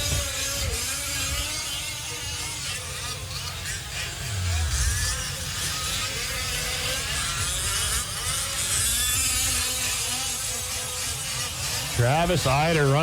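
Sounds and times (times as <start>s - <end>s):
small gas engines buzzing: 0.0s - 13.0s
low rumble: 4.2s - 5.6s.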